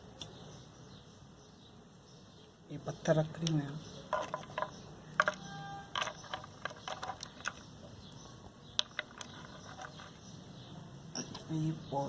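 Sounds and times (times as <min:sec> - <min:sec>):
pebbles clicking in ceramic pot: 0:03.3 - 0:08.0, 0:08.7 - 0:10.2.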